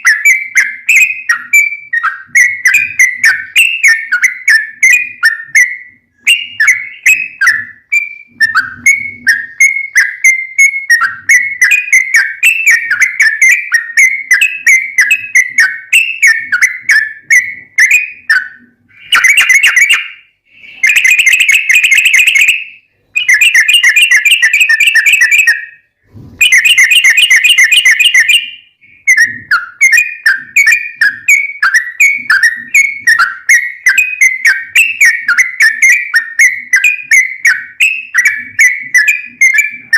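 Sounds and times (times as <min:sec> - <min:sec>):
bird fast trills: 0:00.0 - 0:25.8
bird chirping: 0:00.0 - 0:39.9.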